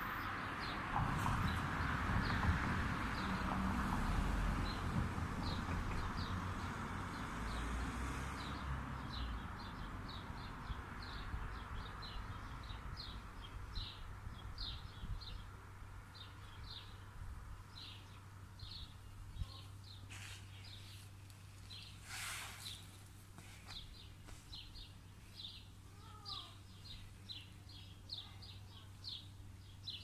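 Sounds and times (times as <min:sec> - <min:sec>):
small bird chirping: 0:23.7 - 0:30.0.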